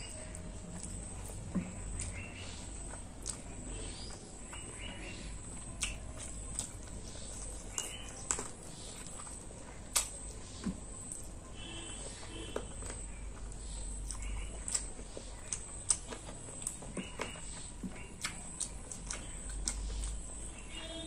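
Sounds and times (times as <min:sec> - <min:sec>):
chewing with wet mouth clicks: 0:00.0 - 0:11.4, 0:12.2 - 0:20.7.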